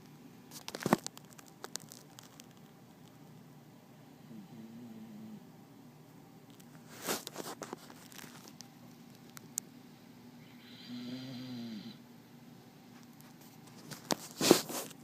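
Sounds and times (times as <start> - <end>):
dog snoring: 4.2 - 5.5, 10.4 - 12.0.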